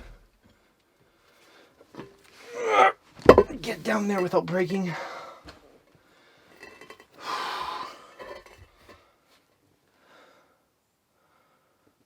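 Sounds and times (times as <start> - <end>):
man breathing heavily: 7.2 - 8.2.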